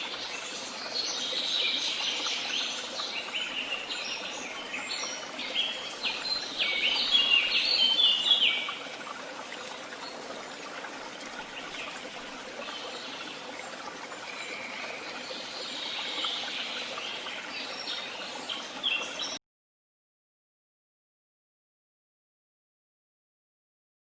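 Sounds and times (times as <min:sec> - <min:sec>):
songbirds singing: 0:00.0 - 0:19.4.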